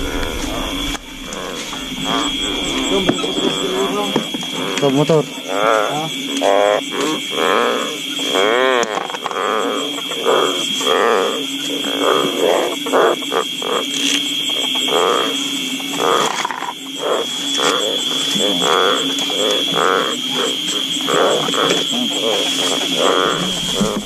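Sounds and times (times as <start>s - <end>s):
high-pitched whine: 0.0s - 5.3s, 17.0s - 24.0s
frogs croaking: 0.0s - 24.0s.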